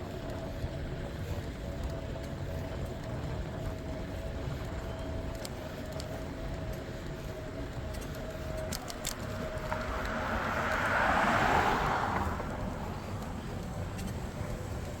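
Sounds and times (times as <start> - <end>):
low wind: 0.0 - 15.0
road rumble: 0.0 - 15.0
car passing: 5.8 - 15.0.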